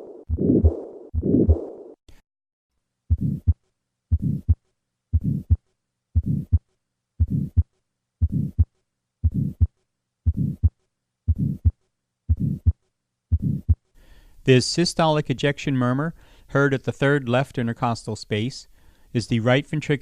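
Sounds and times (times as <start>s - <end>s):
heartbeat through stethoscope: 0.2s - 1.7s, 3.1s - 5.6s, 6.2s - 13.8s
heart murmur: 0.3s - 1.6s, 3.1s - 5.6s, 6.2s - 6.6s, 7.2s - 13.8s.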